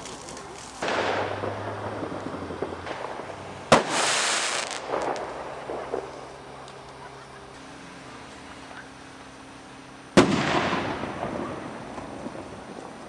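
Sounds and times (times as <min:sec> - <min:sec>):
firework bang: 0:00.0 - 0:07.5, 0:10.1 - 0:13.0
small firework pops: 0:00.0 - 0:07.7, 0:10.2 - 0:13.0
firework rushing noise: 0:00.0 - 0:13.0
high crackling hiss: 0:00.0 - 0:13.0.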